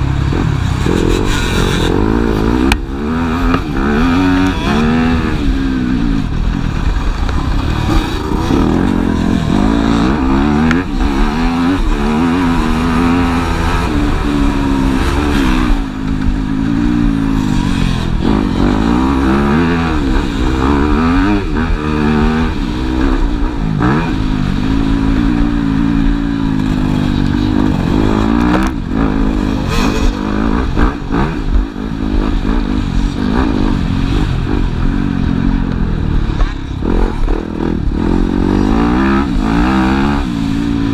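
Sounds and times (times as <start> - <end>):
motocross bikes revving: 0.0 - 40.9.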